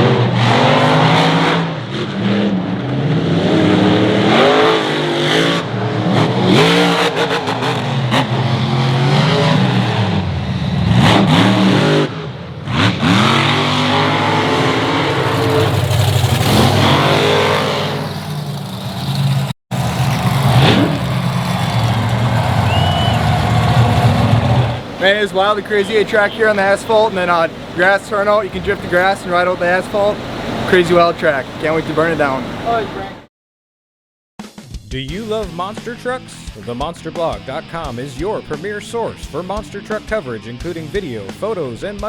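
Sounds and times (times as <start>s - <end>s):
monster truck engines revving: 0.0s - 33.3s.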